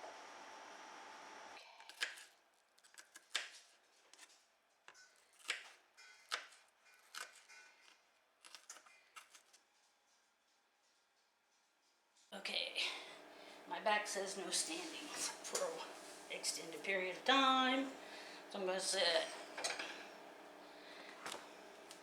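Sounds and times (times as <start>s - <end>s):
steady hum: 12.4s - 22.0s.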